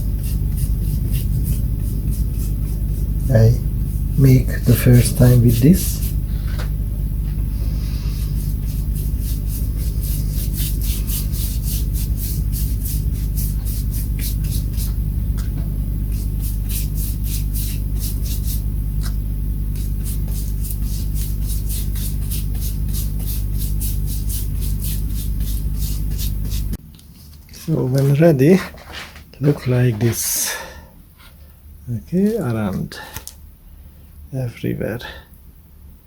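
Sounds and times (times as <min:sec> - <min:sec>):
rubbing strokes on wood: 0:00.0 - 0:06.2, 0:07.6 - 0:15.0, 0:16.1 - 0:18.6, 0:19.8 - 0:26.8
steady low hum: 0:00.0 - 0:36.0.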